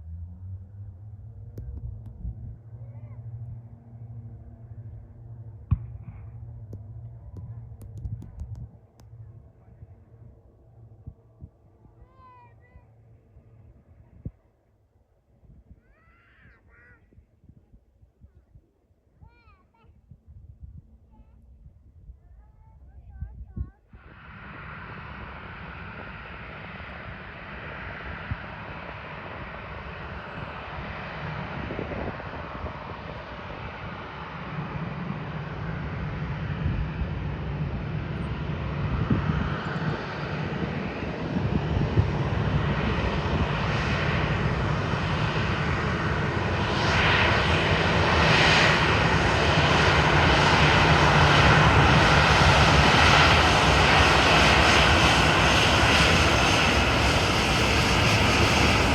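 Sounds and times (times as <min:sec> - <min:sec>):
jet engine roar: 0:00.7 - 0:10.4, 0:24.0 - 0:58.9.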